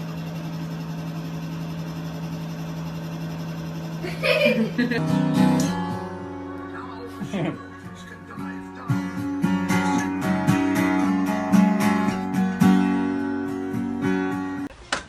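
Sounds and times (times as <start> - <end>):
strummed acoustic guitar: 4.6 - 14.7.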